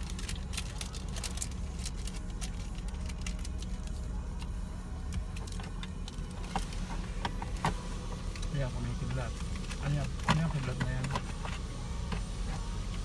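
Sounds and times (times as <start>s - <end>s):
steady low hum: 0.0s - 13.0s
car wash spray pattering: 6.6s - 13.0s.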